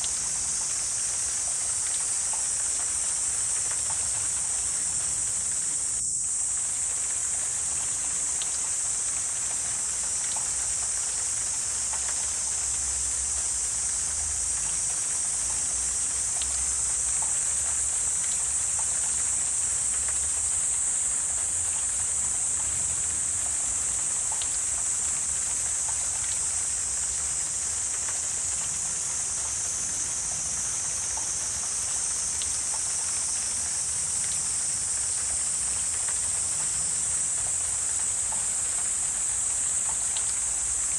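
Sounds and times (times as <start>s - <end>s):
high-pitched insect chorus: 0.0s - 40.9s
faint soft ticks: 8.4s - 15.7s, 16.3s - 20.6s, 23.4s - 28.8s, 35.0s - 40.9s.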